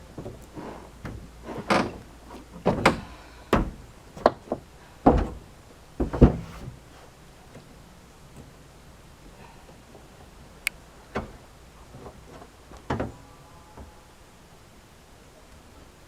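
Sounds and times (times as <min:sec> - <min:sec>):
clunks on sheet-metal panels: 0:00.1 - 0:07.0.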